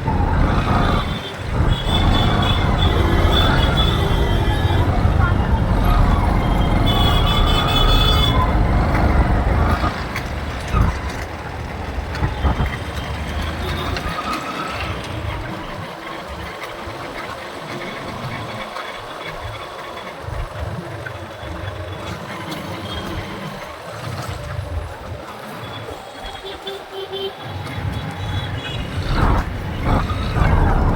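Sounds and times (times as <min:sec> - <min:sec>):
rushing air: 0:00.0 - 0:12.8, 0:28.2 - 0:30.9
motorbike engine rumble: 0:00.0 - 0:16.4, 0:28.0 - 0:30.9.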